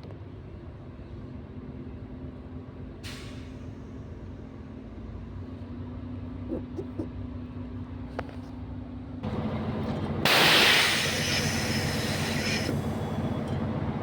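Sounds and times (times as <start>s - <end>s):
bus diesel engine idling: 0.6s - 14.0s
compressed air hiss: 10.3s - 12.9s.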